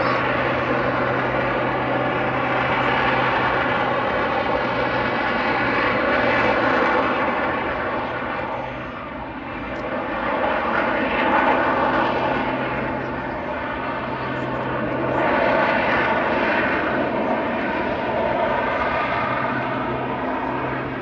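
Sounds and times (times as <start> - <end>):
aircraft engine drone: 0.0 - 21.0.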